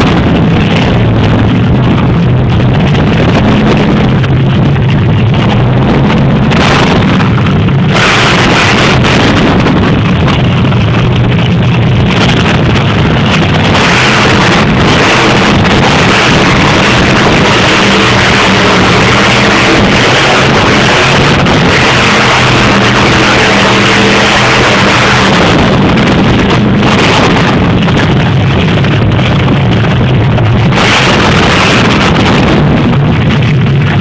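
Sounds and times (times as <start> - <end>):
monster truck engine running: 0.0 - 34.0.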